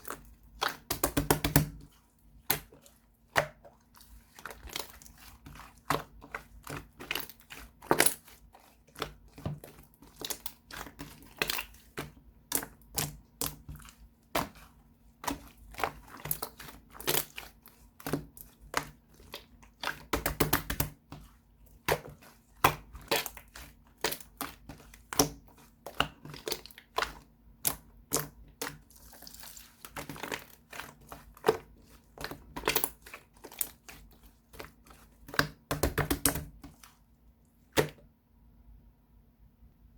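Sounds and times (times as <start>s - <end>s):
slime squished by hand: 0.0s - 37.0s.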